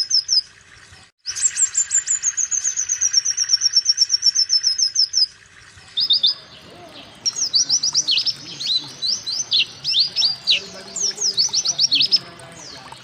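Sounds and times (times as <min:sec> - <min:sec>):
small bird high chirps: 0:05.9 - 0:12.3.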